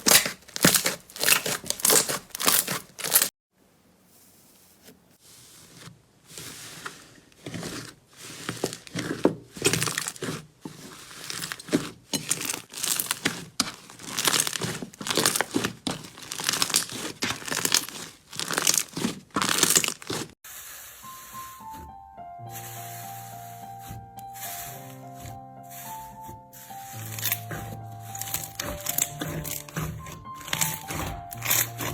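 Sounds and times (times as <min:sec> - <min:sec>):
slime squeezed crackling: 0:00.0 - 0:03.3, 0:08.7 - 0:20.4, 0:26.6 - 0:31.9.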